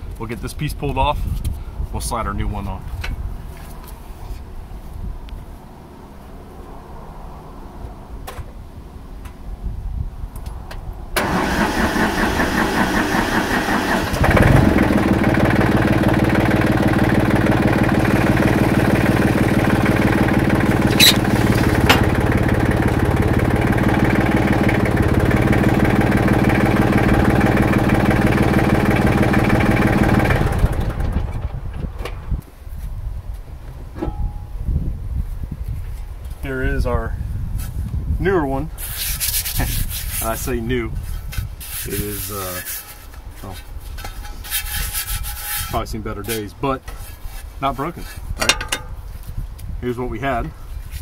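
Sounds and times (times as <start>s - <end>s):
tractor engine running: 11.2s - 32.3s.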